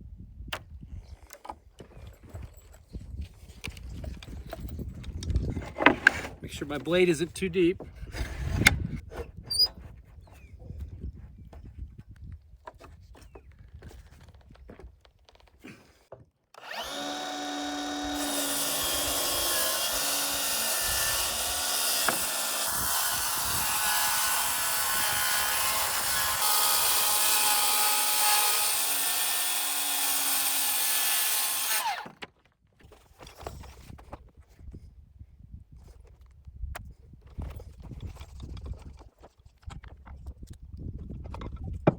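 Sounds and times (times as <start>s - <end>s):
circular saw cutting: 16.6s - 32.2s.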